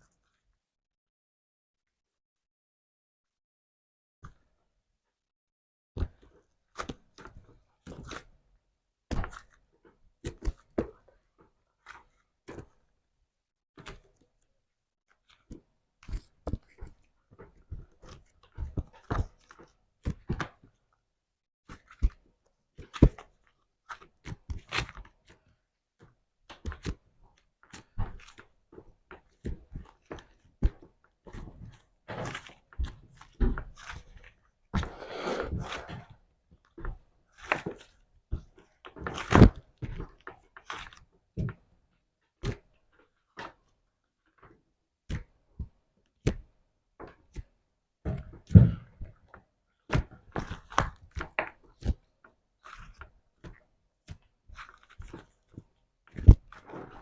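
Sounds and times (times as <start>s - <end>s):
slime squelch: 31.2s - 39.6s.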